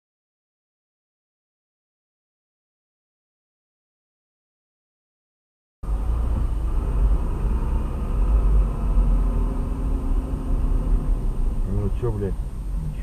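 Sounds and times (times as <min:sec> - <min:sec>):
vehicle rumble from inside cab: 0:05.8 - 0:13.0.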